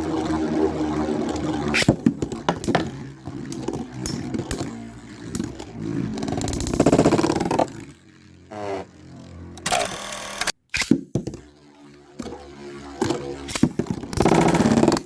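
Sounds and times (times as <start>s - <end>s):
spinning tops whirring and scraping: 0.0s - 15.0s
spinning tops clicking as they collide: 0.1s - 7.9s.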